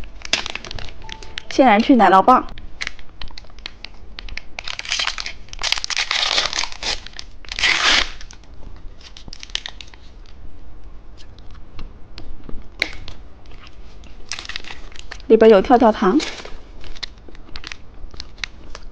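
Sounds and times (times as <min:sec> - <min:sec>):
plastic packaging crinkling: 0:00.1 - 0:01.9, 0:02.8 - 0:10.2, 0:13.5 - 0:15.3, 0:16.2 - 0:18.9
plastic wrapper tearing: 0:00.2 - 0:01.1, 0:02.8 - 0:10.1, 0:14.2 - 0:15.3, 0:16.2 - 0:18.9.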